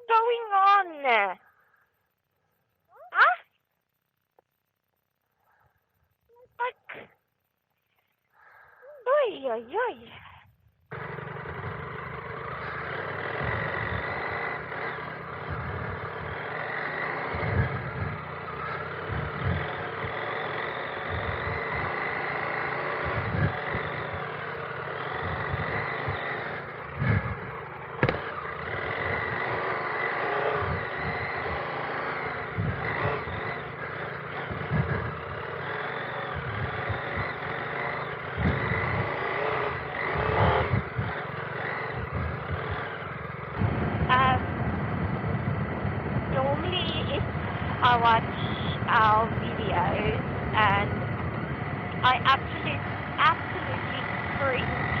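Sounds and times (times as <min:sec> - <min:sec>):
motorcycle engine riding: 0:00.0 - 0:55.0
low thumps and rattles: 0:28.0 - 0:28.3.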